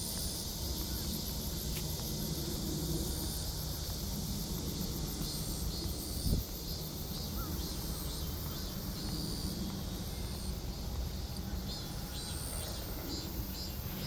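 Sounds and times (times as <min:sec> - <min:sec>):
wind noise rumble: 0:00.0 - 0:13.9
insects chirping: 0:00.0 - 0:14.0.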